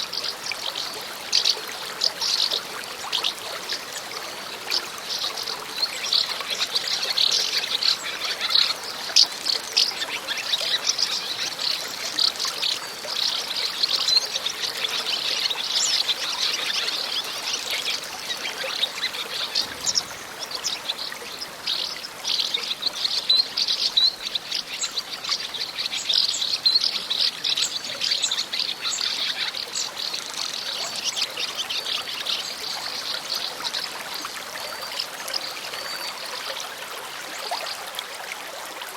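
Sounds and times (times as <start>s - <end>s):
birds chirping: 14.2s - 32.6s
water splashing over stones: 14.4s - 22.9s.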